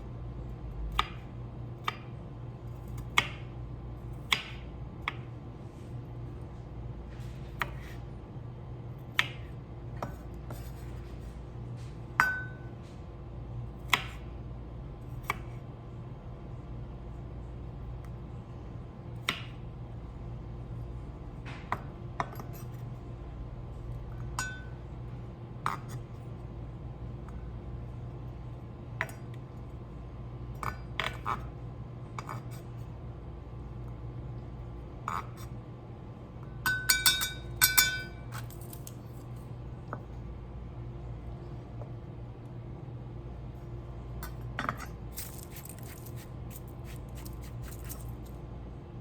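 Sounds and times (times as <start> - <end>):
steady low hum: 0.0 - 49.0
dishes and utensils clinking: 36.7 - 38.9.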